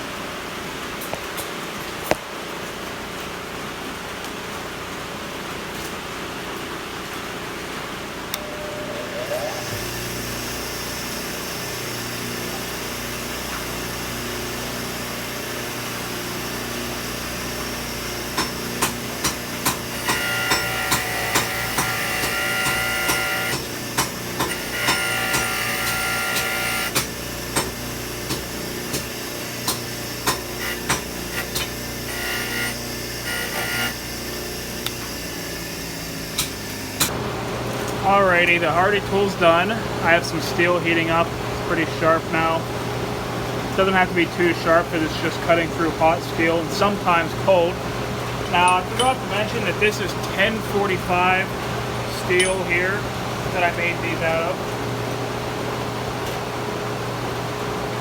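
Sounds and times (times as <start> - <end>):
high-pitched ringing tone: 8.4 - 10.2
steady fan-like hum: 37.0 - 58.0
hammer blows on steel anvil: 52.3 - 53.0.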